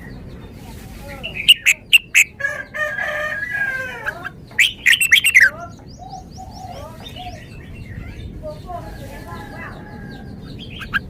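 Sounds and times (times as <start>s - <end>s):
faint bird chirping: 0.0s - 11.0s
bird singing whistled notes: 1.2s - 2.4s, 4.6s - 8.3s.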